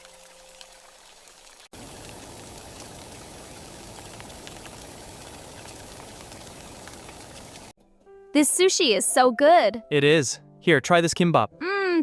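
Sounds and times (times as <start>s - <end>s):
rain falling: 0.0s - 7.8s
drops ticking: 1.8s - 7.7s.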